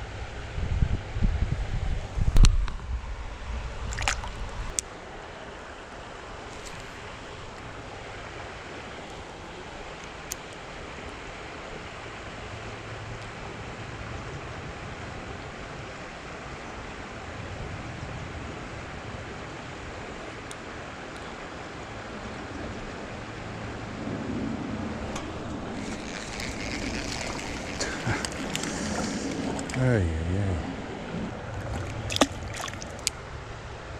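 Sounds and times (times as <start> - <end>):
wind thumps on microphone: 0.6 - 3.0
creek water rushing: 3.6 - 13.8, 24.9 - 33.9.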